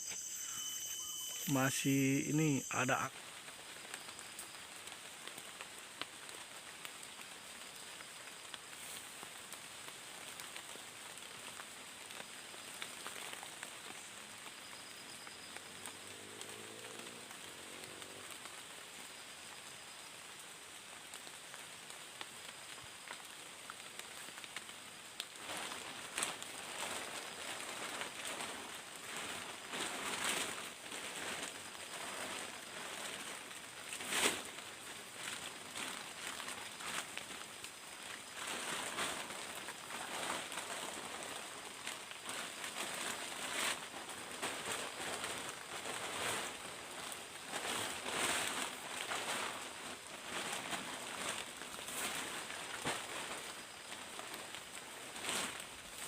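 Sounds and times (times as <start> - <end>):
crackly pattering hiss: 0.0 - 56.0
faint high insect drone: 0.0 - 56.0
rustling: 25.4 - 56.0.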